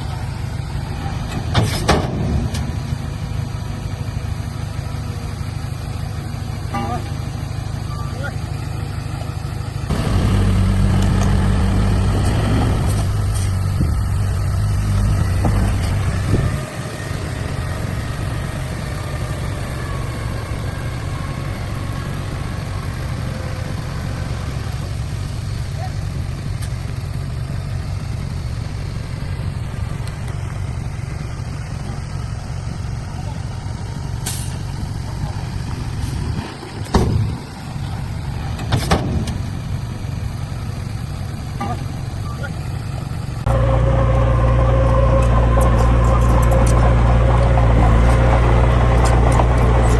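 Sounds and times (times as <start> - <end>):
heavy diesel engine running: 0.0 - 49.9
loud clunk: 1.3 - 2.7, 9.9 - 13.6, 38.6 - 39.4.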